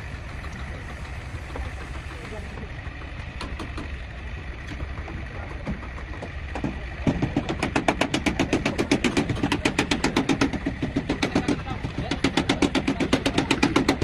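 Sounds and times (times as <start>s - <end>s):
low steady rumble: 0.0s - 14.0s
fast even knocking: 4.9s - 14.0s.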